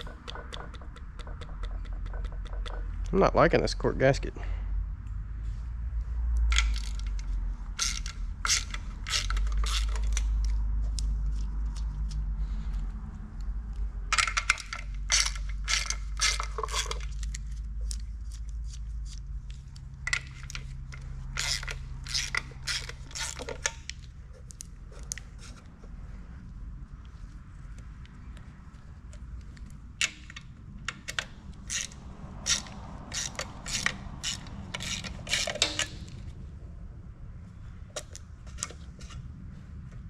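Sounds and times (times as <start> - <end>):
metal tools clinking and scraping: 6.5 - 10.5, 14.1 - 17.4, 20.1 - 24.0, 30.0 - 36.3.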